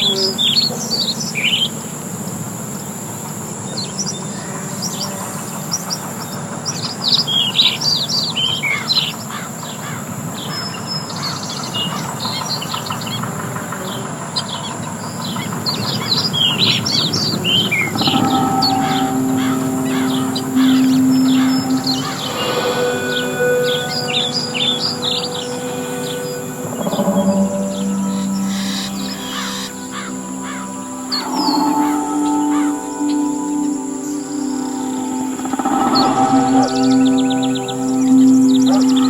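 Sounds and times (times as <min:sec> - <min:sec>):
outdoor ambience hiss: 0:00.0 - 0:39.0
songbirds chirping: 0:00.0 - 0:39.0
held low musical note: 0:17.5 - 0:39.0.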